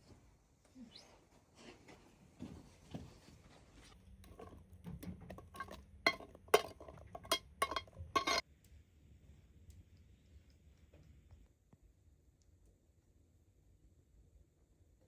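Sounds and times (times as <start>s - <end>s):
objects clicking and knocking: 4.2s - 8.4s.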